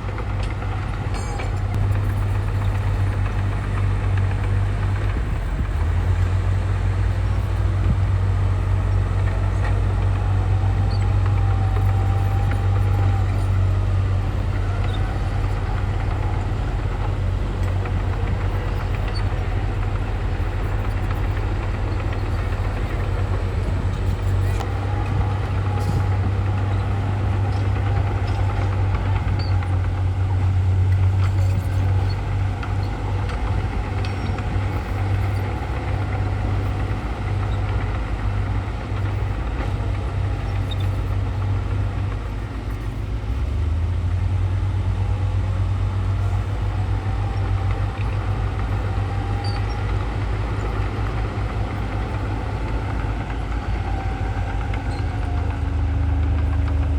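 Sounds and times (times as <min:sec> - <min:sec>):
diesel machinery engine drone: 0:00.0 - 0:56.9.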